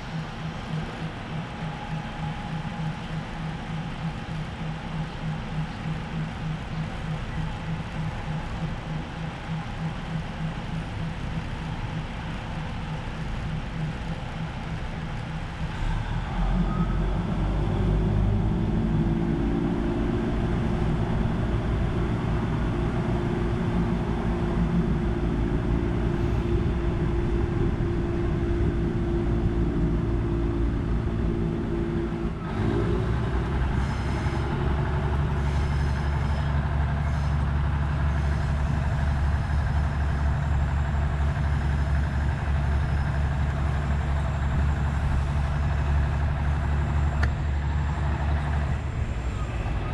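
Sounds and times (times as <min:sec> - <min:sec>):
carriages rumbling: 0:00.0 - 0:49.9
diesel train engine hum: 0:00.0 - 0:49.9.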